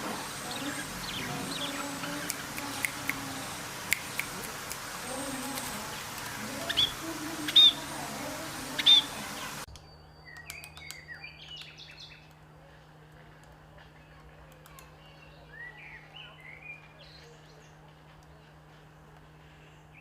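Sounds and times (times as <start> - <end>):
background hiss: 0.0 - 9.7
parrot calling: 0.0 - 9.7
soft chirps and clicks: 1.1 - 7.8, 8.8 - 12.5, 13.1 - 15.2.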